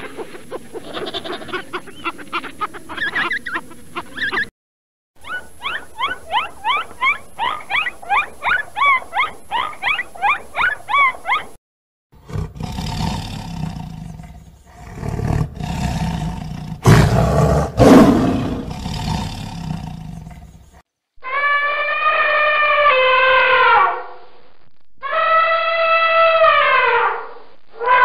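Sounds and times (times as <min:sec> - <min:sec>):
lion roaring: 0:12.2 - 0:20.6
elephant trumpeting: 0:21.2 - 0:24.1.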